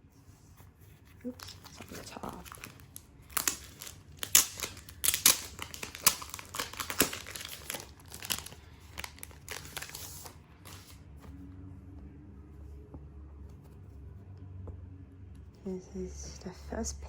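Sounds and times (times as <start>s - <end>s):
packaging crinkling: 1.2s - 11.0s.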